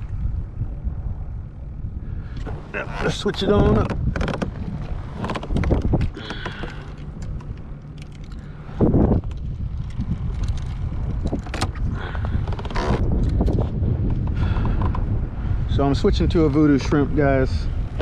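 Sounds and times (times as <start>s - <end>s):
wind rumble on microphone: 0.0s - 18.0s
fishing tackle clicking and rattling: 5.5s - 11.8s.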